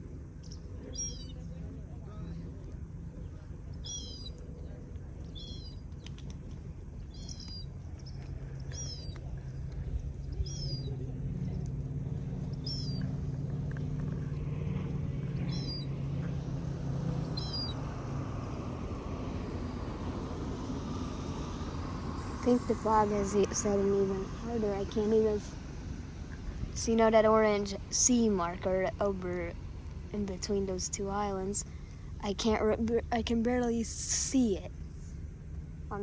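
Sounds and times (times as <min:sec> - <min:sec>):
low engine hum: 0:00.0 - 0:36.0
small bird chirping: 0:00.4 - 0:01.5, 0:03.8 - 0:04.4, 0:05.2 - 0:09.2, 0:10.2 - 0:11.0, 0:12.0 - 0:23.7.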